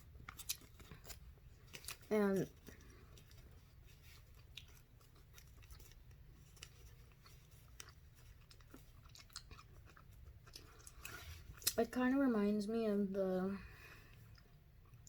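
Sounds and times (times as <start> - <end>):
gum chewing: 0.0 - 11.8
low steady hum: 0.0 - 15.0.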